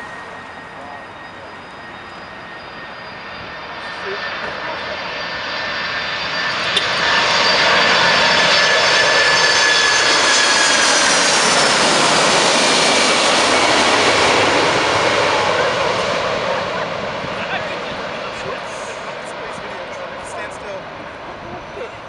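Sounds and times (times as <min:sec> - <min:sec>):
whining tones sliding down: 0:00.0 - 0:15.6
jet engines roaring past: 0:00.0 - 0:22.0.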